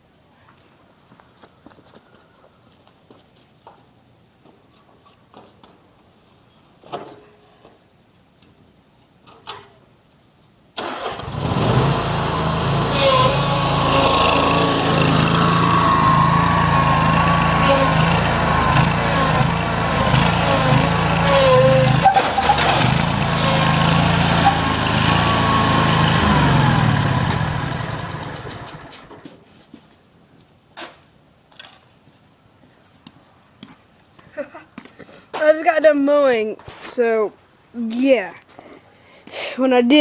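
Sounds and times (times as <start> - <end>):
lawn mower engine running: 10.8 - 29.3.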